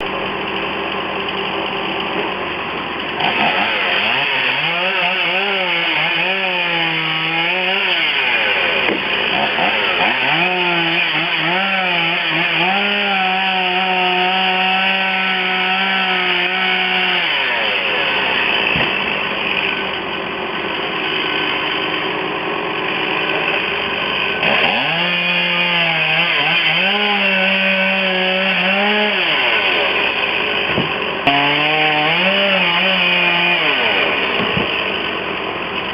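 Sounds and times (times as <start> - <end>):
chainsaw revving and cutting: 0.0 - 35.9.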